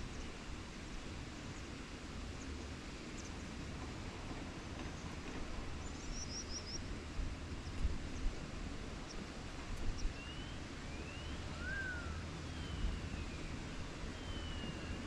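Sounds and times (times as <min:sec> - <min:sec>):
bird chirping: 0:09.9 - 0:13.5, 0:14.1 - 0:15.0.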